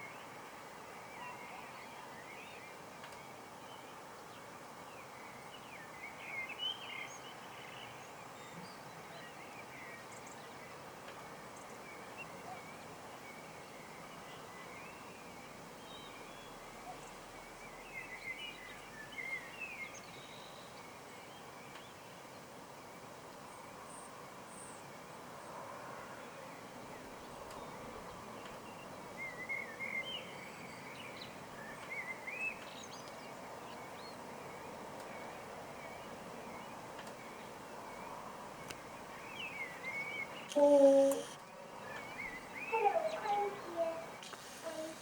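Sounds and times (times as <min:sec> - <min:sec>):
outdoor background noise: 0:00.0 - 0:45.0
small birds chirping: 0:26.8 - 0:45.0.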